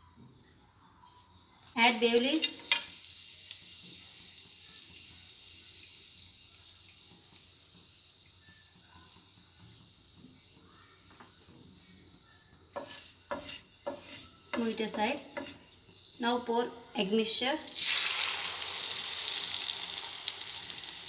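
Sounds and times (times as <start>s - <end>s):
spices sizzling in hot oil: 1.6s - 21.0s.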